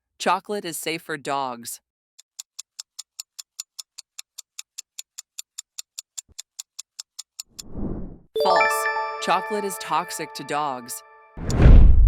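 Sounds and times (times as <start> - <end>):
rapid clock ticks: 2.2 - 7.7.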